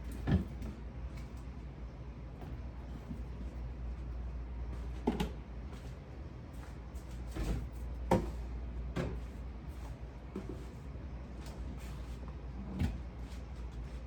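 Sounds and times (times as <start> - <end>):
knocks and clunks of shelves: 0.0 - 0.8, 7.0 - 10.8, 12.6 - 14.0
refrigerator low hum: 0.0 - 14.0.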